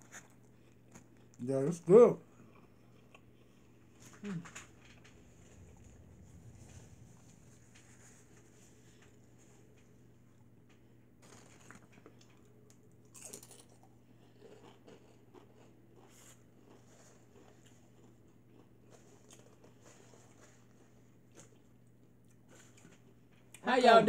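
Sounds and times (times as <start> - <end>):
chewing and crunching chips: 0.0 - 6.5, 10.8 - 23.6.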